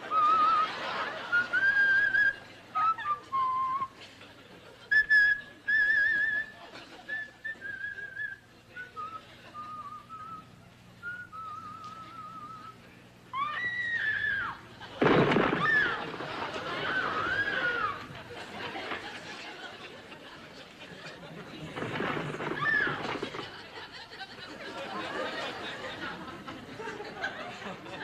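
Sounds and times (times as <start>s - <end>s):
person whistling a tune: 0.1s - 0.7s, 1.3s - 4.0s, 4.9s - 12.8s.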